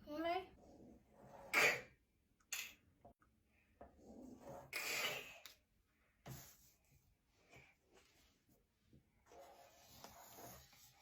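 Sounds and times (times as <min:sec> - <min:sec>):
pen scratching on paper: 0:00.6 - 0:01.8, 0:04.0 - 0:05.2, 0:09.2 - 0:11.0.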